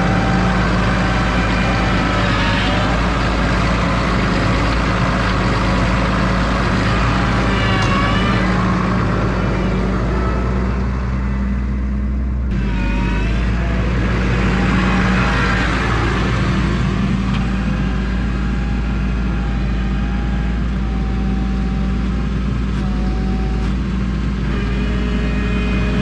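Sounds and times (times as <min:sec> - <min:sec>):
high-pitched squeals: 0:00.0 - 0:11.1, 0:12.5 - 0:16.8
tractor engine running: 0:00.0 - 0:26.0.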